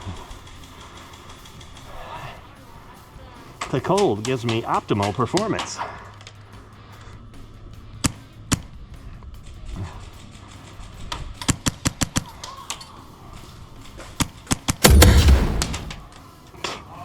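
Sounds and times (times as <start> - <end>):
airsoft gunfire cracks: 14.7 - 16.1
loud rushing thump: 14.8 - 16.1.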